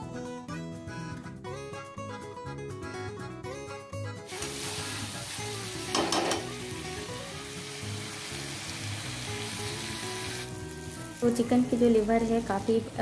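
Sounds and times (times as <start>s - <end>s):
soft guitar music: 0.0s - 13.0s
food sizzling in oil: 4.3s - 13.0s.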